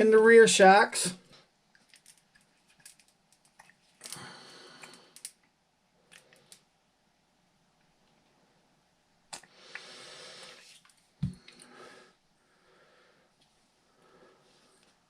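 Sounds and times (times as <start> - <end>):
clicks of small plastic parts: 1.8 - 4.2, 4.8 - 5.5.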